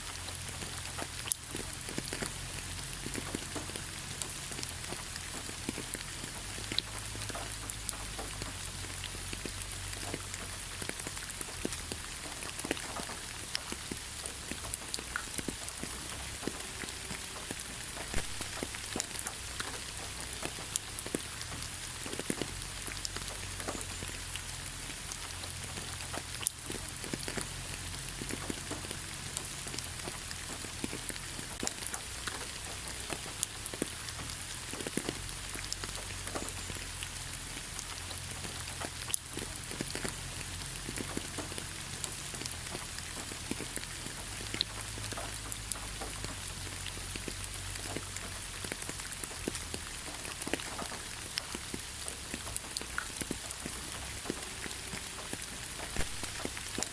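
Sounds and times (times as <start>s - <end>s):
rain drops pattering: 0.0s - 56.9s.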